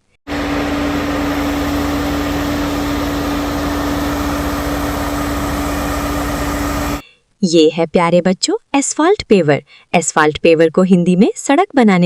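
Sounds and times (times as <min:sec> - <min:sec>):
truck engine running: 0:00.3 - 0:07.0.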